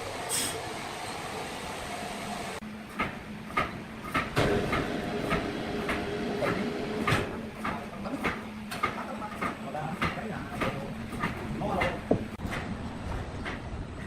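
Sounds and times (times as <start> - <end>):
sawmill machinery clacking: 2.9 - 13.6.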